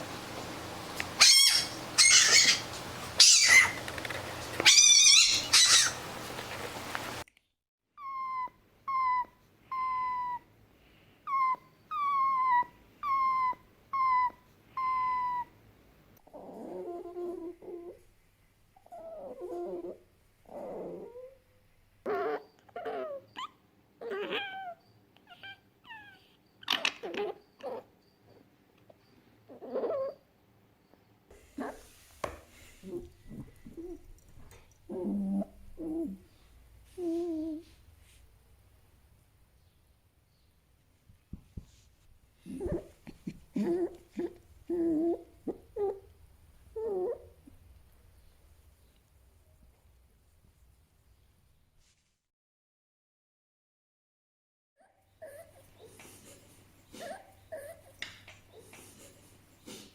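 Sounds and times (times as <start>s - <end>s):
fox sharp cries: 1.2s - 3.8s, 4.6s - 6.0s
fox short yips: 1.2s - 3.8s, 4.6s - 6.0s
fox shrill squeals: 1.2s - 3.8s, 4.6s - 6.0s.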